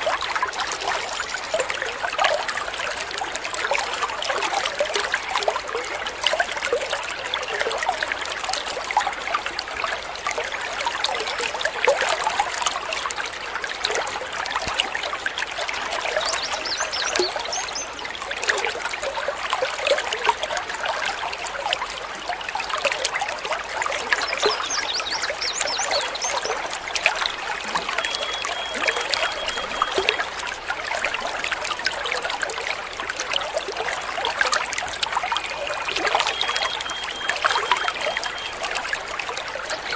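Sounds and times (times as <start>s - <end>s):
stream babbling over stones: 0.0s - 39.9s
faint high bird chirps: 16.2s - 18.0s, 24.1s - 26.6s, 27.6s - 30.3s, 36.0s - 38.9s.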